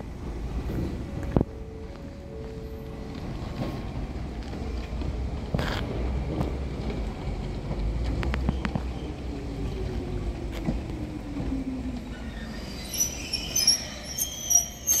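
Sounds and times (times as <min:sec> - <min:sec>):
brake squealing: 0:07.8 - 0:15.0.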